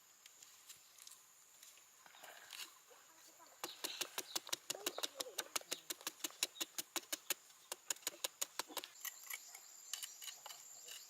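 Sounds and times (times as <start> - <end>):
rapid sharp taps: 3.6 - 8.9.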